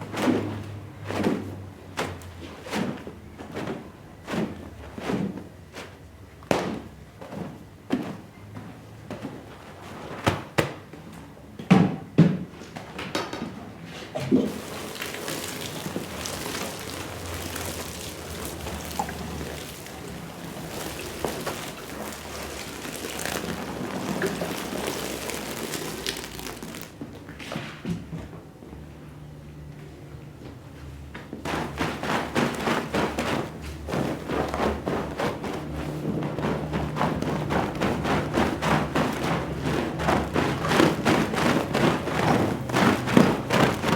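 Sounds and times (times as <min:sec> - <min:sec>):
water spraying onto rug: 0:14.4 - 0:27.0, 0:31.5 - 0:43.9.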